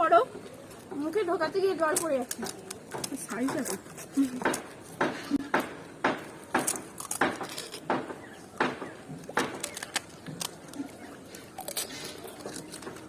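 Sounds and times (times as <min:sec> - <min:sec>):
crisp shells crunching: 0:06.5 - 0:13.0.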